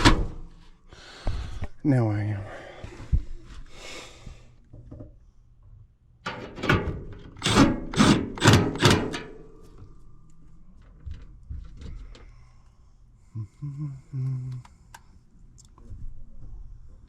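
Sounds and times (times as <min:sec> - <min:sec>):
metal knocks and clunks: 0:06.3 - 0:07.5.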